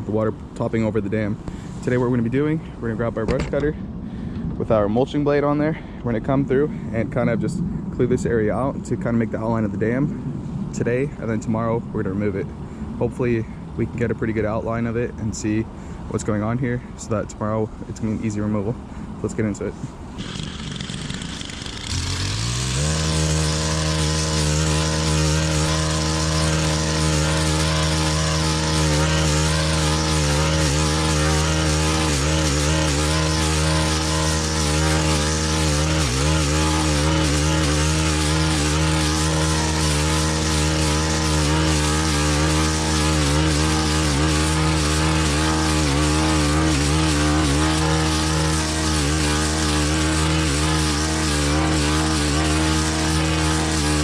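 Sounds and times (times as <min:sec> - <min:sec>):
brush cutter engine revving: 0:19.6 - 0:54.0.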